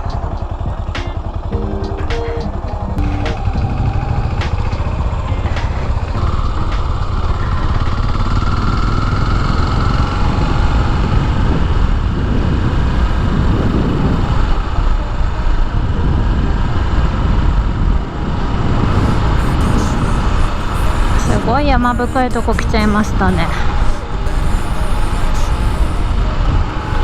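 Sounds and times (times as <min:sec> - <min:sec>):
motorcycle engine running: 0:00.0 - 0:14.6
wind noise on microphone: 0:00.0 - 0:27.0.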